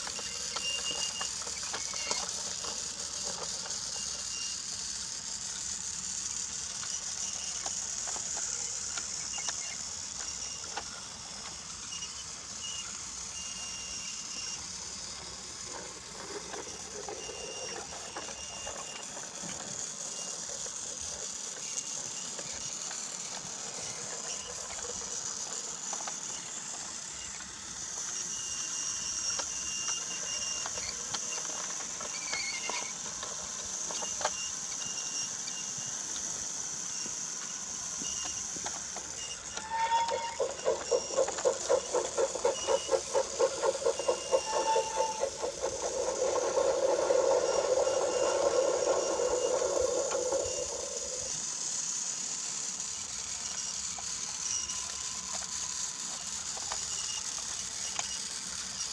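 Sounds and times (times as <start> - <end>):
toy train motor whine: 0.0 - 58.9
rapid even clacking: 40.0 - 51.4.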